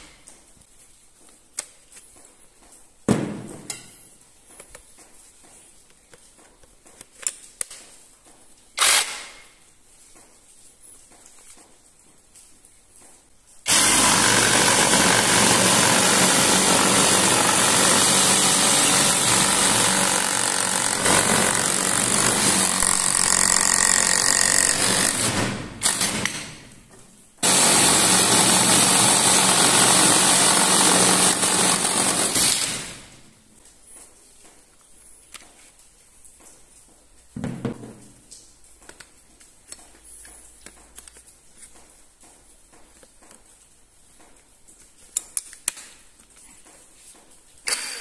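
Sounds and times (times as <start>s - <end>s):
cordless power tool running: 13.7s - 26.0s, 27.4s - 33.1s.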